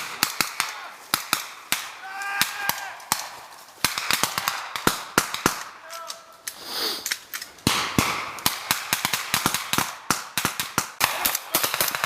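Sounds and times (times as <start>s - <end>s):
rifle shots: 3.1s - 5.8s, 7.6s - 12.0s.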